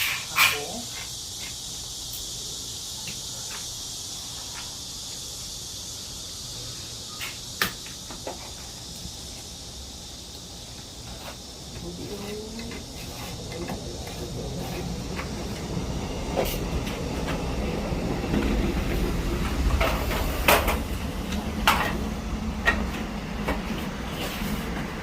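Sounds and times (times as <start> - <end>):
wallpaper rubbing on wall: 11.0 - 15.6, 23.6 - 24.9.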